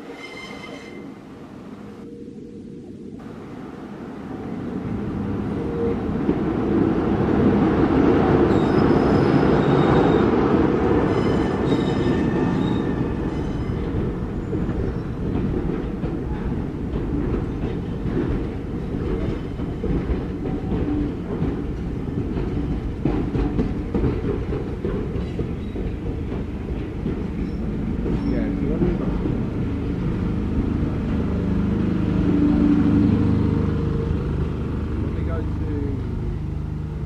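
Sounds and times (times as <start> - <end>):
high-pitched wheel squeals: 0.0 - 1.2, 8.5 - 10.3, 11.1 - 13.8
train running on rails: 0.0 - 37.0.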